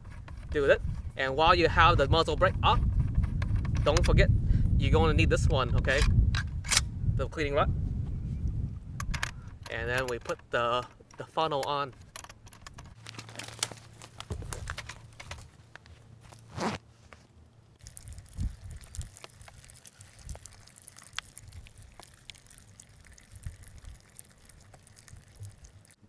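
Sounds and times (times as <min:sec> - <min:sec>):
small clicks and knocks: 0:09.0 - 0:16.5
rustling and crinkling: 0:09.5 - 0:26.0.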